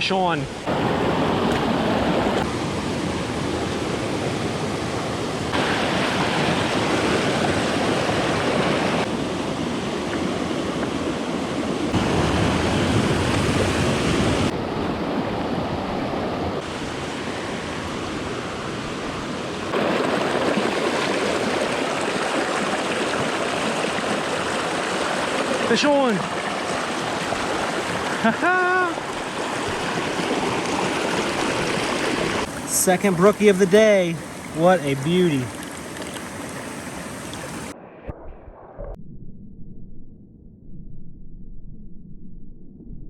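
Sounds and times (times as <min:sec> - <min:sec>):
stream splashing over rocks: 0:05.6 - 0:09.1, 0:19.7 - 0:37.7.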